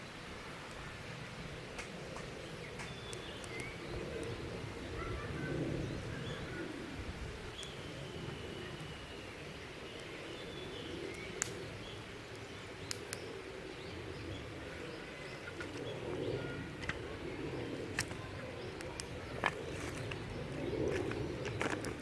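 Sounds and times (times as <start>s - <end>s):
sharp clicks or snaps: 1.8s - 4.4s, 11.2s - 11.6s
faint bird calls: 1.8s - 22.0s.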